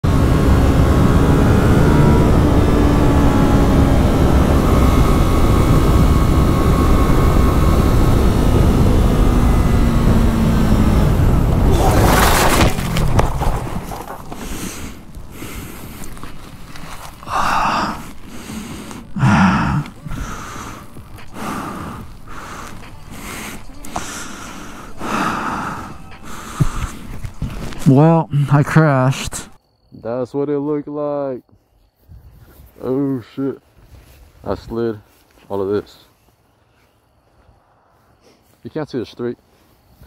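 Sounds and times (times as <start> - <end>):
motorcycle engine running: 0.0 - 27.8
wind noise: 1.0 - 28.5, 32.0 - 32.8
motorcycle crashing and sliding: 8.2 - 28.1
person gasping: 17.2 - 27.2.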